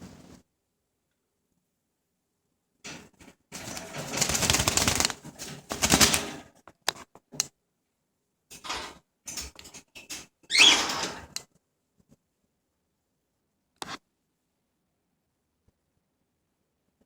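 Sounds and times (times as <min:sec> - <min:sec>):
birds flapping in a wire cage: 0:03.5 - 0:06.5.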